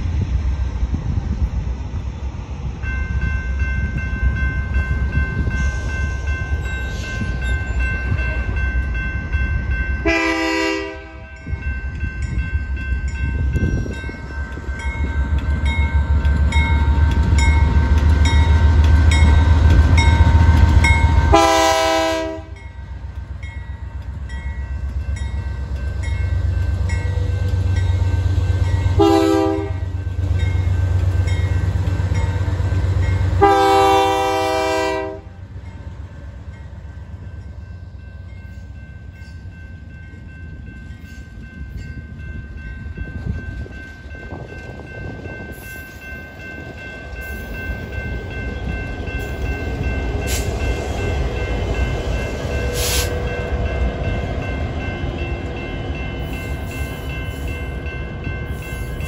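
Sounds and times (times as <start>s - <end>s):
moving train rumble: 0.0s - 59.0s
train horn blasts: 10.0s - 11.5s, 21.3s - 22.6s, 28.9s - 30.0s, 33.4s - 35.4s.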